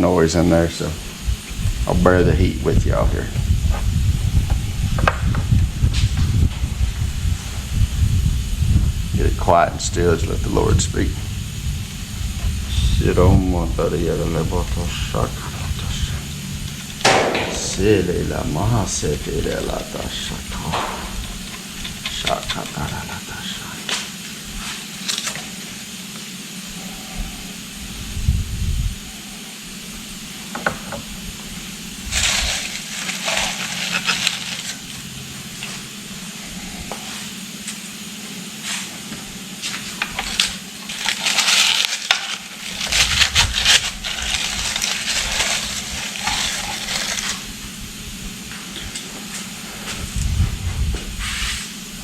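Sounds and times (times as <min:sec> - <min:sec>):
steady low hum: 0:00.0 - 0:52.0
bursts of hissing: 0:00.8 - 0:50.4, 0:51.1 - 0:52.0.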